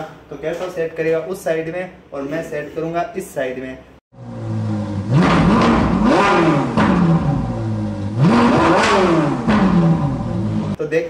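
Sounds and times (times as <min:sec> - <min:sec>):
car engine idling and revving: 0:04.1 - 0:10.8.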